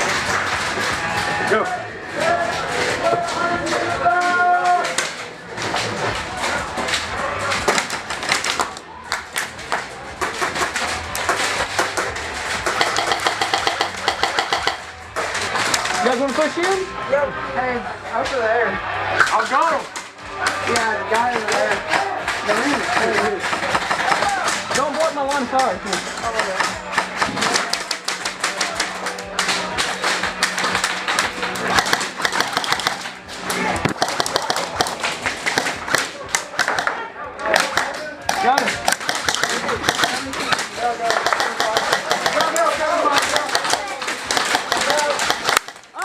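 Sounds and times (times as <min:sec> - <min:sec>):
pellets smacking targets: 0:00.0 - 0:01.5, 0:02.2 - 0:16.9, 0:19.2 - 0:46.0
airsoft guns firing: 0:04.8 - 0:16.5, 0:26.0 - 0:46.0.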